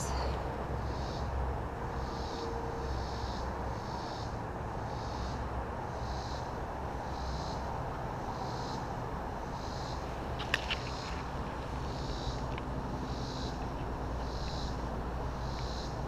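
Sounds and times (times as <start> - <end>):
honeybees humming: 0.0 - 1.3, 4.9 - 16.0.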